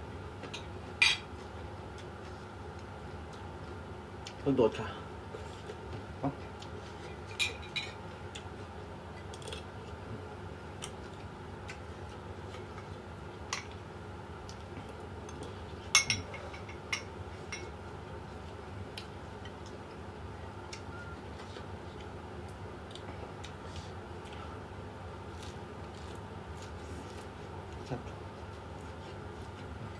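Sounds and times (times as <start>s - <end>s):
low background hum: 0.0s - 29.9s
cutlery clinking against dishes: 16.0s - 17.7s.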